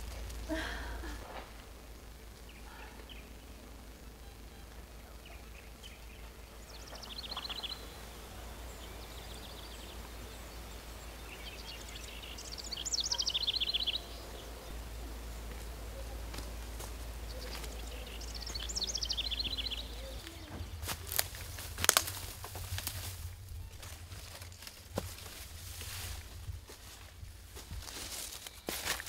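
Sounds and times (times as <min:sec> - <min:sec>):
steady low rumble: 0:00.0 - 0:28.5
songbird trilling: 0:02.4 - 0:22.0.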